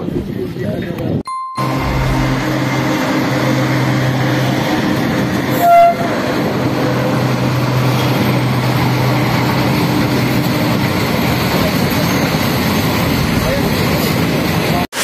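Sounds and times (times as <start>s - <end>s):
freight train passing: 1.3s - 14.8s
train horn blast: 5.5s - 6.5s.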